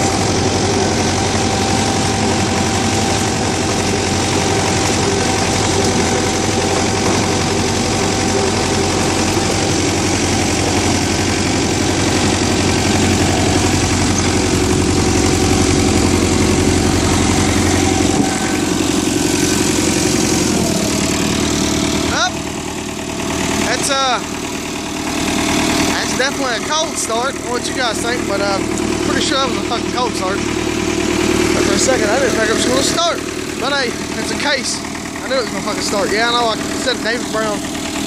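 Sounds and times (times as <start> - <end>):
tractor diesel engine idling: 0.0 - 38.0.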